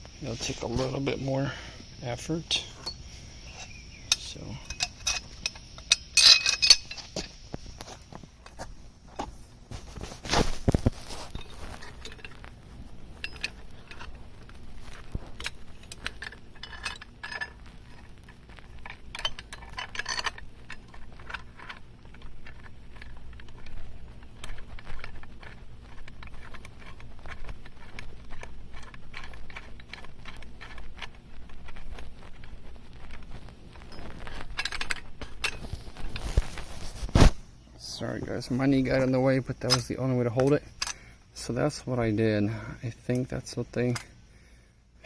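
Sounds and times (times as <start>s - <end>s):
metal parts clinking and rattling: 2.5s - 7.4s, 10.4s - 36.8s, 38.4s - 42.0s.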